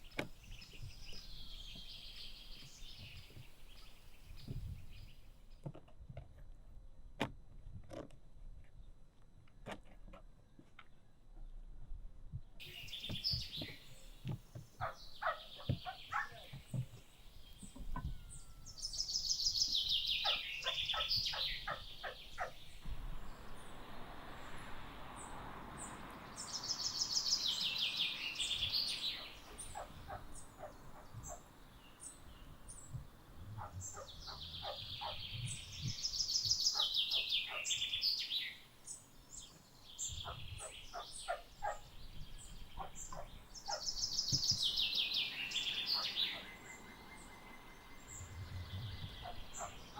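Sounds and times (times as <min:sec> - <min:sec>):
bird chattering trill: 0:18.9 - 0:22.8, 0:26.4 - 0:31.5, 0:33.5 - 0:38.3.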